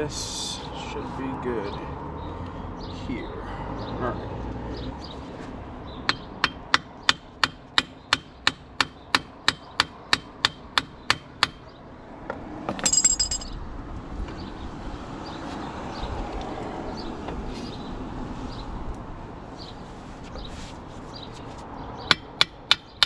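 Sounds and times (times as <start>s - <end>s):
hammer striking metal: 6.1s - 11.6s
metallic clatter and clink: 12.7s - 13.6s.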